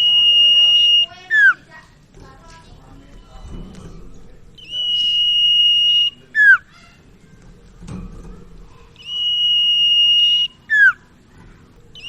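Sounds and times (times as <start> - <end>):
bird whistling call: 4.6 - 6.7, 9.0 - 11.1.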